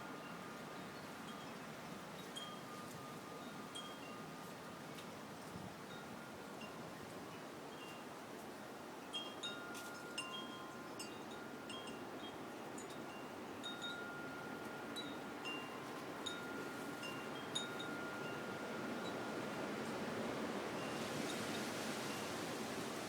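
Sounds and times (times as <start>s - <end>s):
wind chimes ringing: 0.0s - 4.8s, 9.0s - 20.0s.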